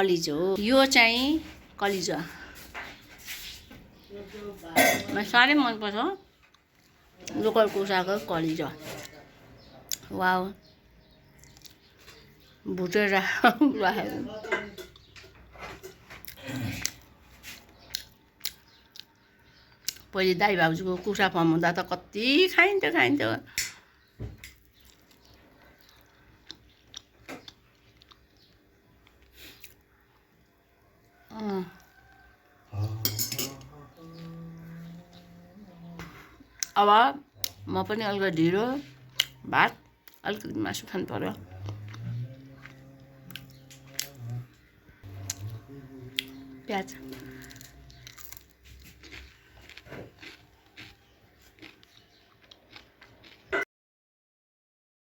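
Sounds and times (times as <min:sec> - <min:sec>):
faint chewing and eating: 0:00.8 - 0:53.7
small mouth clicks and smacks: 0:11.4 - 0:12.2, 0:24.5 - 0:29.9.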